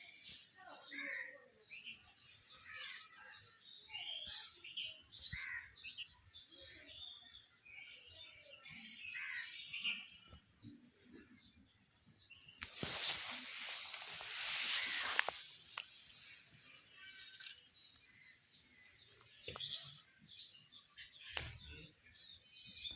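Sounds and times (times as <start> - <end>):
birds chirping and whistling: 1.8 - 22.9
steady high-pitched hiss: 12.5 - 20.0.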